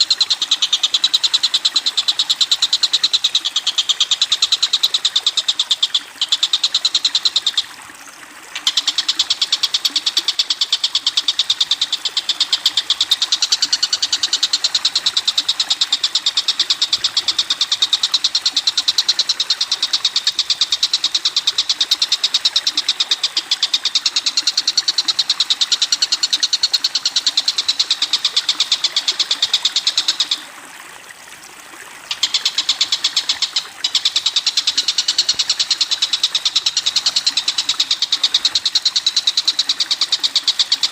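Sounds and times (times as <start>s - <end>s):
songbird rattling trill: 32.1s - 40.9s.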